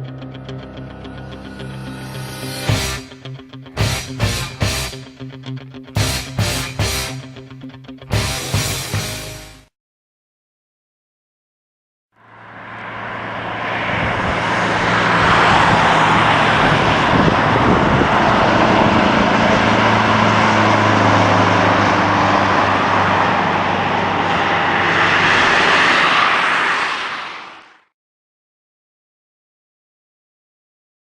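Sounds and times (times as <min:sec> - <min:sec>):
loud diesel engine running: 0:02.7 - 0:05.1, 0:06.0 - 0:07.3, 0:08.1 - 0:09.5, 0:12.3 - 0:25.9.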